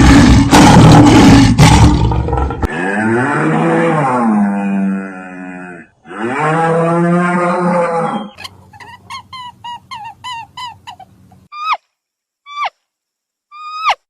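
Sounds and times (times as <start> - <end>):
cow mooing: 2.6 - 8.4
animal giving short high calls: 13.5 - 14.0.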